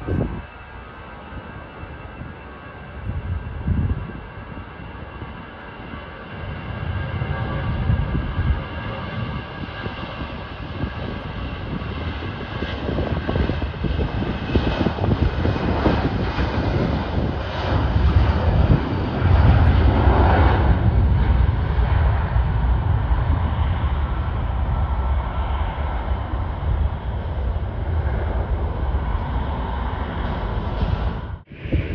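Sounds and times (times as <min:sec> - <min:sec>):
jet engines rumbling: 0:00.0 - 0:31.9.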